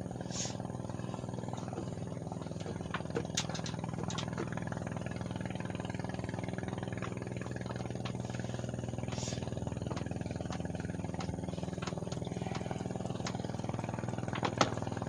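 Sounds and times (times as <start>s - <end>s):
engine running steadily: 0.0s - 15.0s
light clicks and taps: 2.6s - 4.5s, 9.1s - 13.5s.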